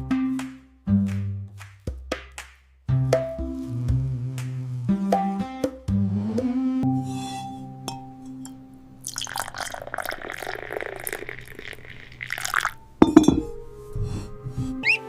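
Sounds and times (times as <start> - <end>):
soft background music: 5.0 - 10.5, 12.6 - 15.0
water splashing: 9.0 - 13.6.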